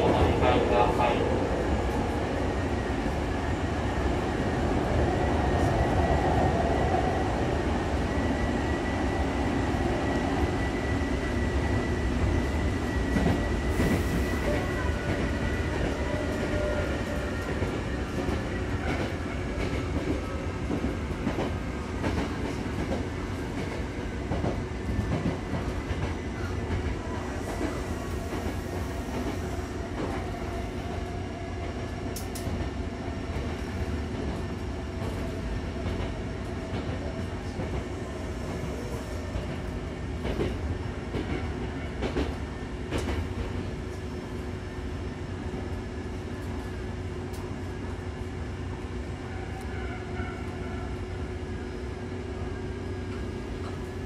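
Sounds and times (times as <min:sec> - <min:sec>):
train wheels rumbling on rail: 0:00.0 - 0:54.0
clickety-clack of rail joints: 0:13.0 - 0:37.9, 0:38.5 - 0:44.1, 0:53.1 - 0:54.0.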